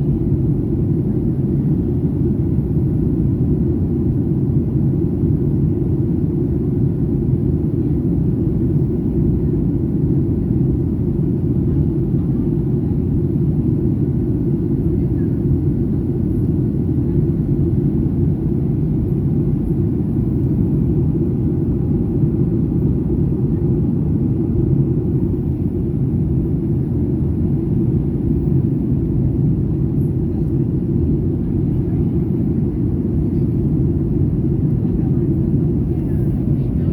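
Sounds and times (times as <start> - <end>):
jet engine cabin rumble: 0.0 - 36.9.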